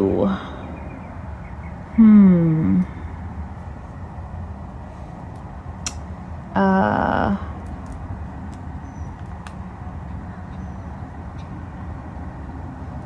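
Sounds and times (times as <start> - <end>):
low background hum: 0.0 - 13.0
woman humming mmm: 2.0 - 3.0.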